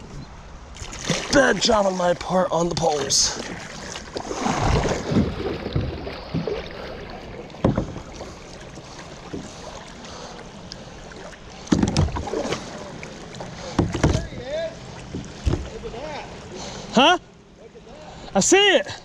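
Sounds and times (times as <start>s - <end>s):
background noise wash: 0.0s - 19.0s
hollow knocks on kayak: 7.6s - 8.3s, 11.7s - 12.6s, 13.7s - 14.4s, 15.1s - 15.8s.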